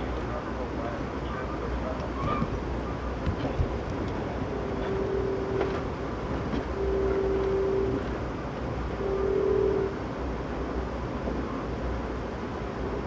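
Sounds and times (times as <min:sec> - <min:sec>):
train rumbling on rails: 0:00.0 - 0:13.0
locomotive horn blasts: 0:04.5 - 0:05.7, 0:06.7 - 0:08.1, 0:08.9 - 0:10.0.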